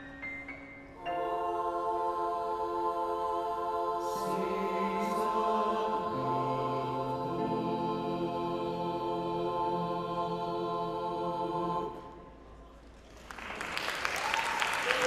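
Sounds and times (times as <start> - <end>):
choir singing held chords: 1.0 - 12.5.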